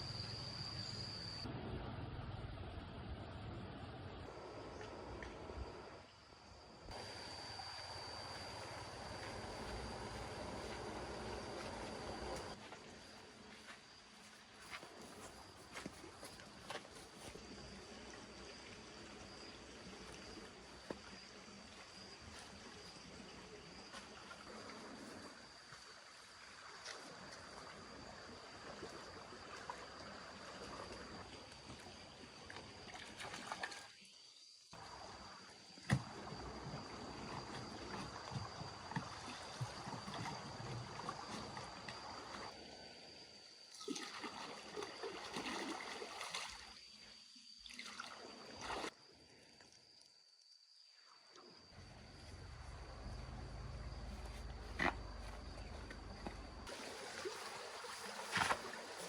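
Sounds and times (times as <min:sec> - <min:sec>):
high insect drone: 0:00.0 - 0:01.5, 0:04.2 - 0:33.1, 0:33.7 - 0:59.0
thin steady high tone: 0:00.0 - 0:01.5, 0:06.8 - 0:12.6
water sloshing and trickling: 0:02.1 - 0:59.0
flowing water: 0:43.7 - 0:47.0, 0:47.6 - 0:49.0, 0:55.0 - 0:59.0.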